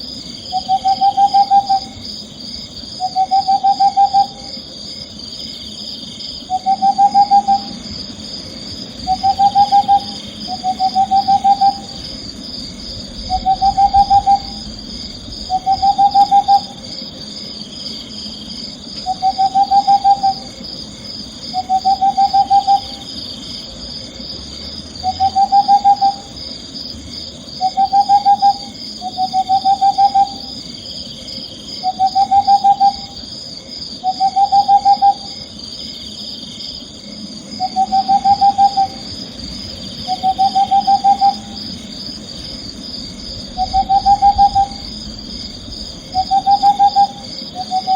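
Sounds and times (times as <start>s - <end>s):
owl trilling hoots: 0.5s - 2.0s, 3.0s - 4.6s, 6.4s - 7.9s, 9.0s - 17.1s, 19.0s - 20.6s, 21.5s - 23.1s, 25.0s - 26.4s, 27.6s - 30.5s, 31.8s - 33.2s, 34.0s - 35.4s, 37.6s - 39.2s, 40.0s - 41.7s, 43.2s - 47.9s
high-pitched chirring: 12.8s - 17.0s, 43.3s - 47.9s.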